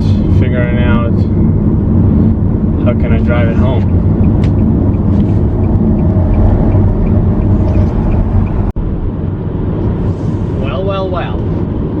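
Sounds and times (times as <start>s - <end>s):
car cabin road and engine rumble: 0.0s - 12.0s
faint ticking: 3.8s - 8.7s.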